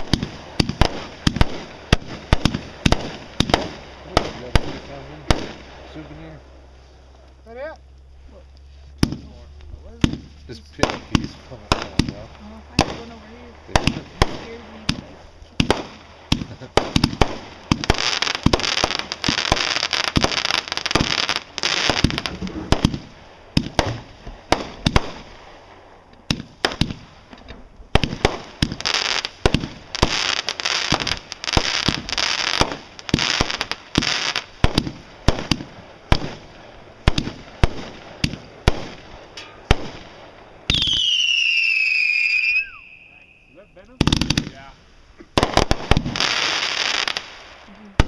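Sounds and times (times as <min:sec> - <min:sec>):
firework bangs and crackling: 0:00.0 - 0:48.0
whistling firework: 0:40.6 - 0:44.6.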